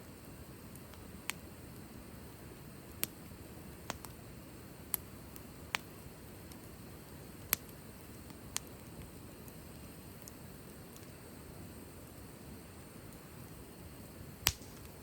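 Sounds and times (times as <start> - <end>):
low background noise: 0.0 - 15.0
wood fire crackling and popping: 0.0 - 15.0.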